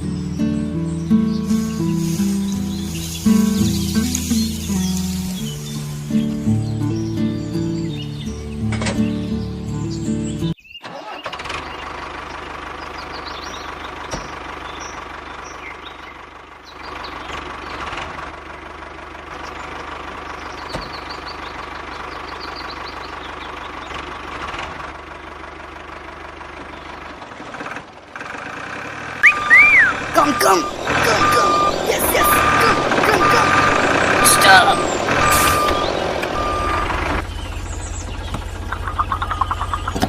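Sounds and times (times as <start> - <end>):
music: 0.0 - 10.6
faint bird chirps: 29.2 - 33.7.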